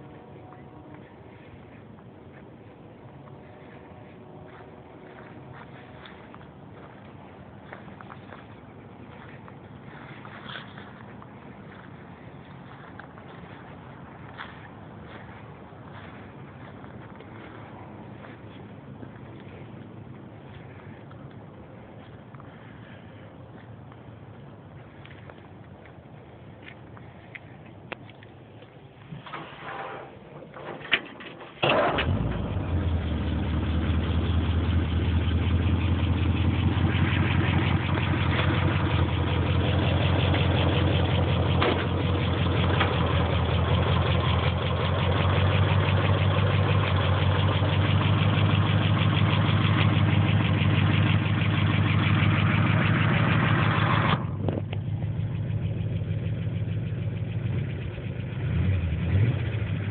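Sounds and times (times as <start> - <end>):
truck engine starting and idling: 0.0 - 59.9.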